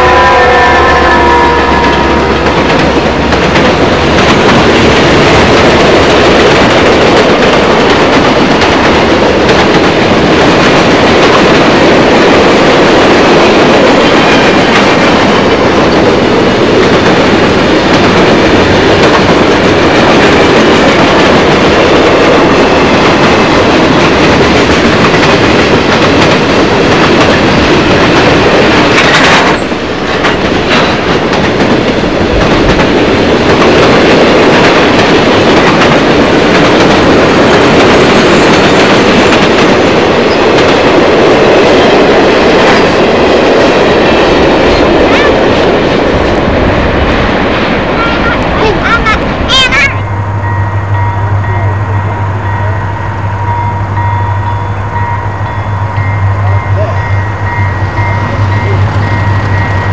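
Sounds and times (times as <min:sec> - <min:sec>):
train cars rumbling and clattering: 0:00.0 - 0:59.9.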